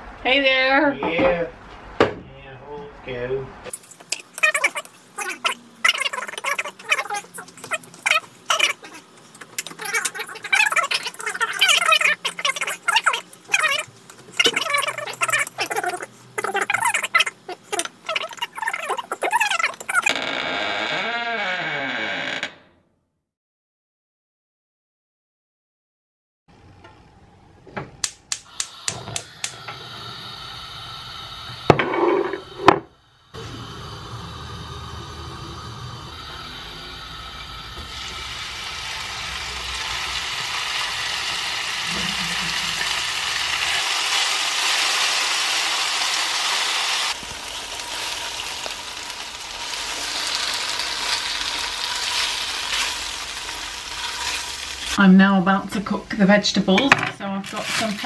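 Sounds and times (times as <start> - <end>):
meat sizzling in hot oil: 33.4 - 55.0.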